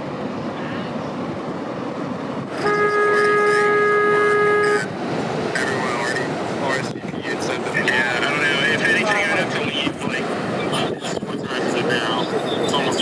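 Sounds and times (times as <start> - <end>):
background rush: 0.0 - 13.0
vehicle horn honk: 2.5 - 4.9.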